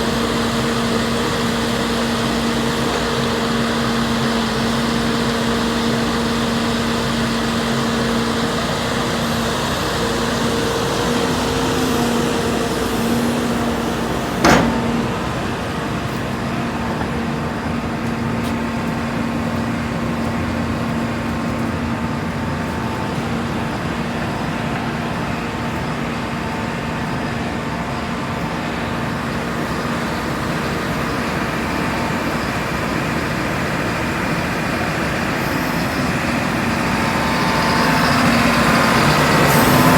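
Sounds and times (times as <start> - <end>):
excavator diesel engine running: 0.0 - 39.9
sharp bang: 11.9 - 15.4.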